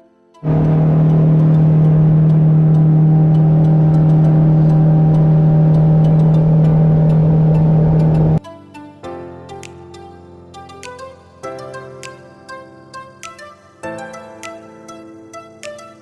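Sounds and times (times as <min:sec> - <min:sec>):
motor humming steadily: 0:00.4 - 0:08.4.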